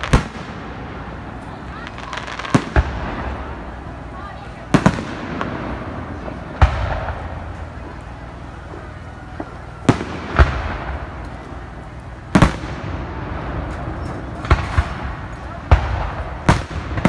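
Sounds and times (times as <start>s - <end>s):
firework booms with echo: 0.0s - 3.8s, 4.6s - 8.0s, 8.6s - 17.0s.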